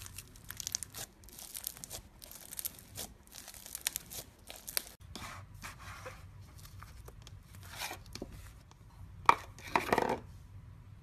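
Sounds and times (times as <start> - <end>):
slime squished by fingers: 0.0 - 5.0.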